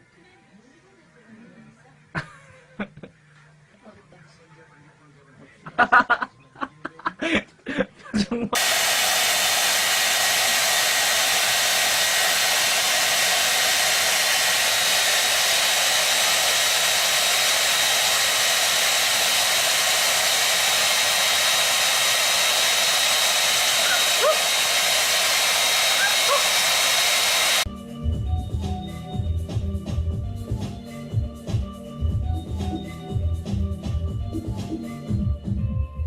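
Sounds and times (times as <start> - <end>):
music: 0.0 - 7.4, 27.7 - 36.0
loud rushing hiss: 8.6 - 27.7.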